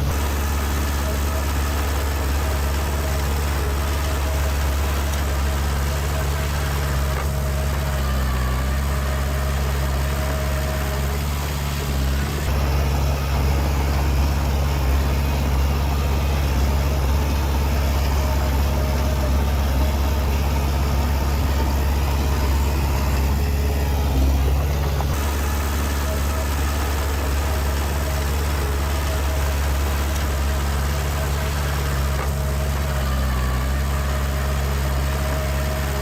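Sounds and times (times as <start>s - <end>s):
diesel engine running at low revs: 0.0s - 36.0s.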